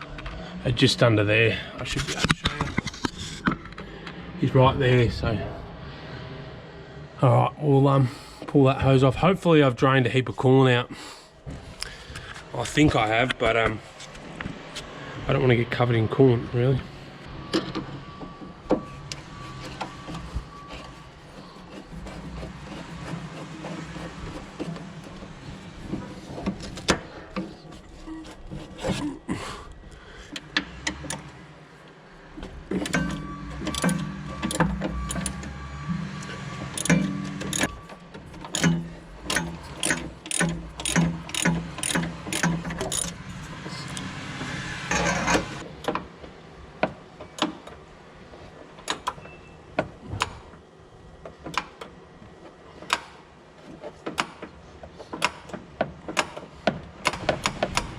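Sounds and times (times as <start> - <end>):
hand tool clicks on metal: 38.5 - 43.2.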